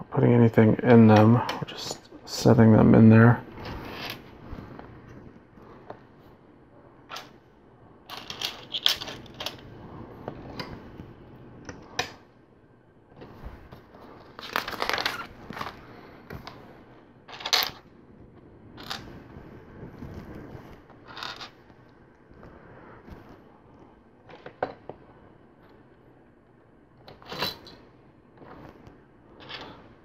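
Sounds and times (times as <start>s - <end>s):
rustling of plastic pieces: 8.1s - 9.6s, 14.3s - 15.8s.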